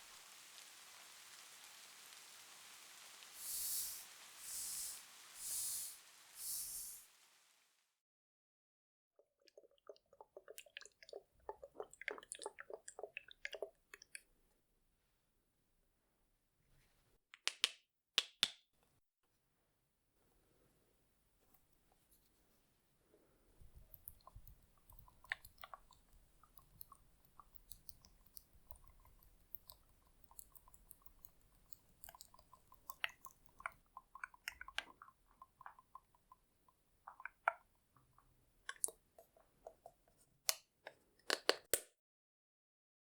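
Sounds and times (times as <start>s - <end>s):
sticky crackling clicks and taps: 23.6s - 41.9s.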